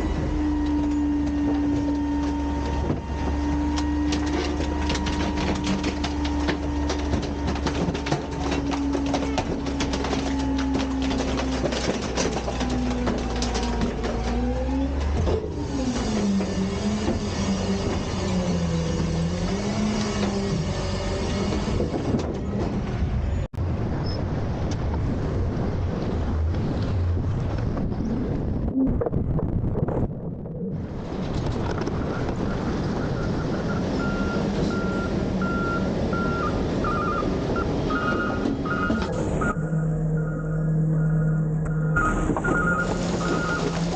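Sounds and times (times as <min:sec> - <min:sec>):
garbage truck engine running: 0:00.0 - 0:23.9, 0:30.1 - 0:43.9
knocks and clanks: 0:00.1 - 0:23.0
low hum: 0:23.6 - 0:33.0
reversing alarm beeping: 0:32.1 - 0:43.8.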